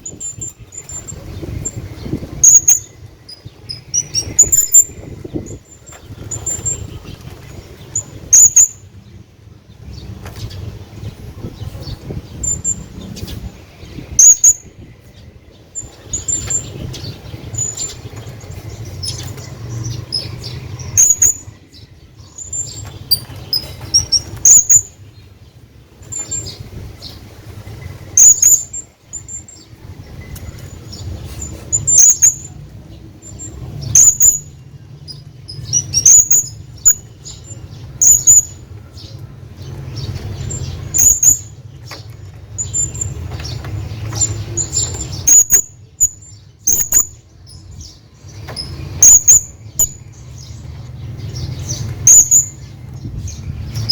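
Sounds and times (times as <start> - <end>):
parrot squeaky calls: 2.4 - 2.9, 20.1 - 21.5, 28.2 - 29.4, 31.4 - 32.5, 33.8 - 34.5, 35.5 - 37.1, 38.0 - 38.6, 40.9 - 41.5, 44.6 - 47.2, 49.0 - 50.0, 52.0 - 52.6.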